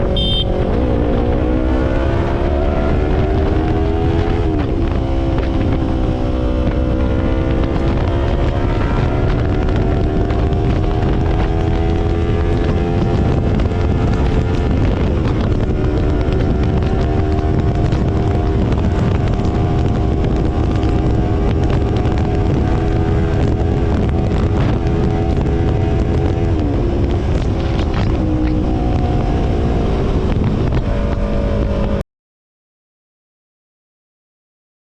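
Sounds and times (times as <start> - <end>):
motorcycle engine at highway speed: 0.0 - 32.0
wind rush on microphone: 0.0 - 32.0.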